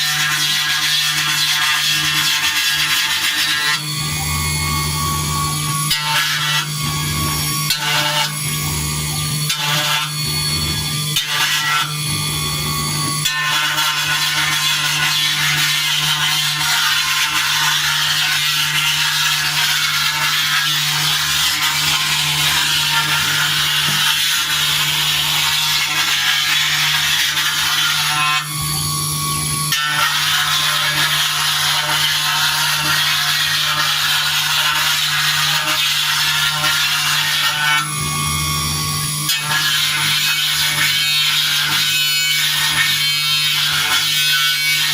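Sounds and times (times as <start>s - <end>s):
spindle hum: 2.4s - 29.7s.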